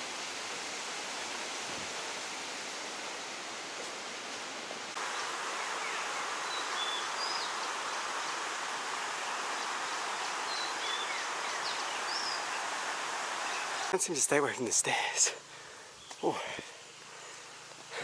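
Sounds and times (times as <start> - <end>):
steady hiss of water or insects: 0.0 - 18.0.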